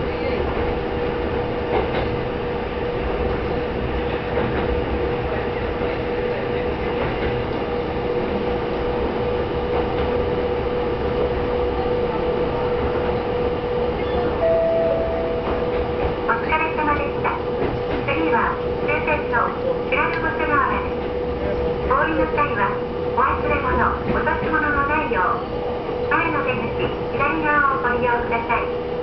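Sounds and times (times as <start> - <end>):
railcar engine rumble: 0.0 - 29.0
higher tone: 14.4 - 16.2.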